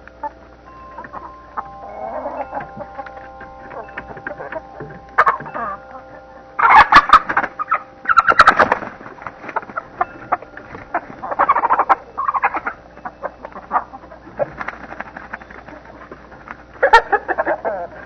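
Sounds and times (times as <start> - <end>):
chickens squawking and clucking: 0.0 - 18.0.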